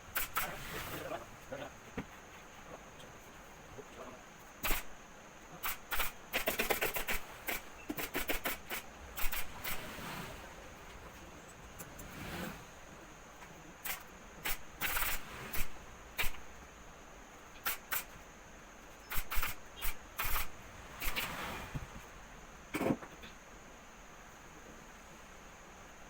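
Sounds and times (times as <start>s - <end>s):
hissing bursts: 0.0s - 1.3s, 4.6s - 5.0s, 5.6s - 13.1s, 13.8s - 16.7s, 17.6s - 18.2s, 18.9s - 23.0s.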